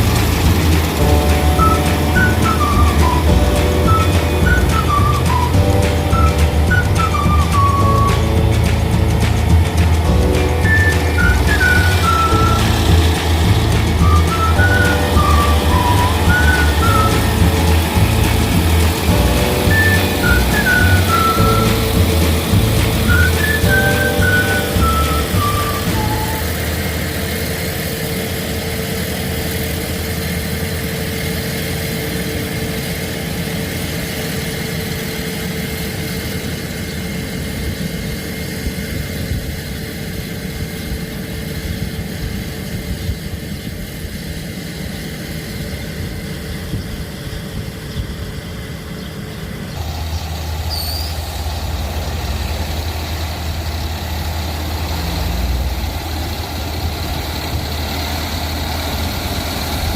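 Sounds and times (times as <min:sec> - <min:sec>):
heavy engine rumbling: 0:00.0 - 0:59.9
bird chirping: 0:46.7 - 0:51.2.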